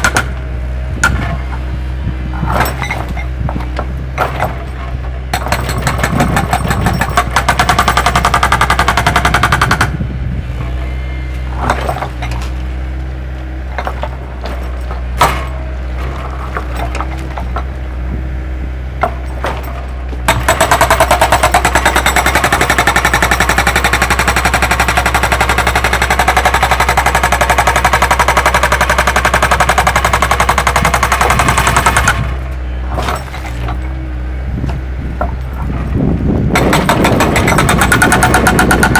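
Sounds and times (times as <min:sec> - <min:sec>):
excavator diesel engine running: 0:00.0 - 0:38.9
metal knocks and clanks: 0:01.0 - 0:10.0, 0:10.6 - 0:12.7, 0:13.7 - 0:17.9, 0:34.6 - 0:38.9
fast rattle of impacts: 0:02.4 - 0:10.0, 0:19.0 - 0:34.0, 0:34.7 - 0:38.9.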